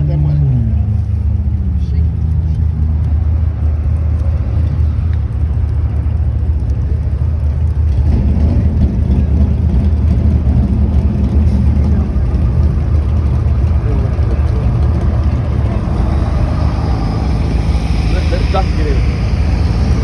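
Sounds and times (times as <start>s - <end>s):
vehicle engine rumble: 0.0s - 20.0s.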